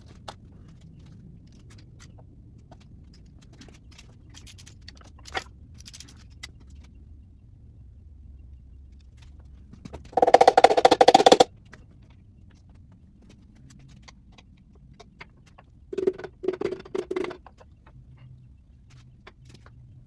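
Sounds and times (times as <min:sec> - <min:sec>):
rapid rattling tool strikes: 0:10.0 - 0:11.5.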